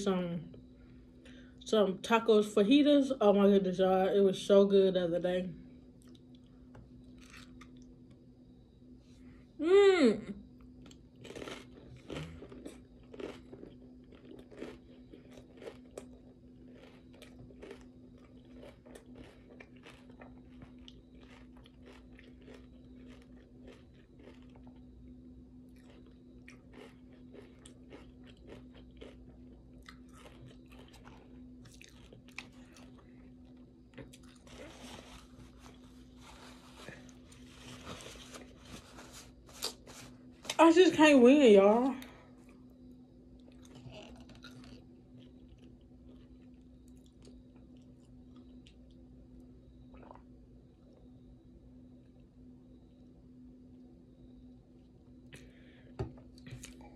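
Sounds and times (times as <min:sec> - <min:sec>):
steady low hum: 0:00.0 - 0:56.9
crunchy chewing: 0:06.0 - 0:08.2, 0:10.6 - 0:40.6, 0:42.0 - 0:51.2
paper towel rustling: 0:34.6 - 0:40.2.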